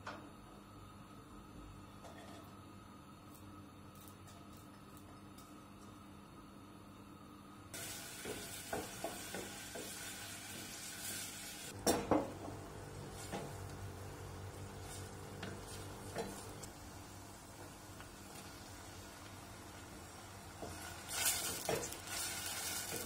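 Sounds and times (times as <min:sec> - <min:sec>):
food sizzling in a frying pan: 0:07.8 - 0:23.0.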